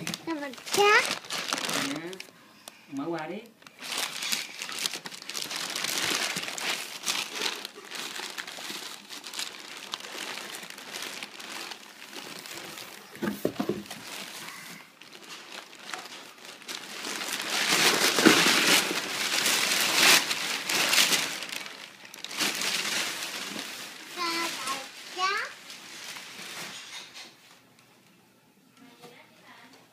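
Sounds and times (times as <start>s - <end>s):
wrapping paper crinkling: 0.0s - 27.4s.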